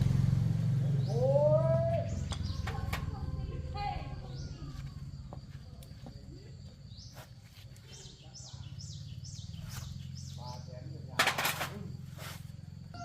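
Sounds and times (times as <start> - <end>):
small bird chirping: 0.8 - 13.0.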